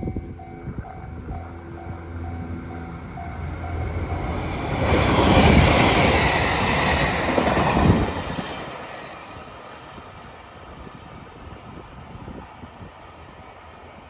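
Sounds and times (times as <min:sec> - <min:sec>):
train wheels rumbling and clattering: 0:02.9 - 0:10.4.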